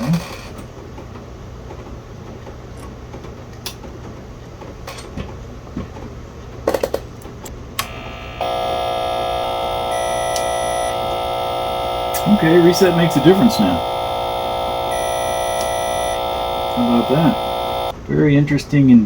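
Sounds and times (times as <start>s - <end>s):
loud electrical buzz: 7.8s - 17.9s.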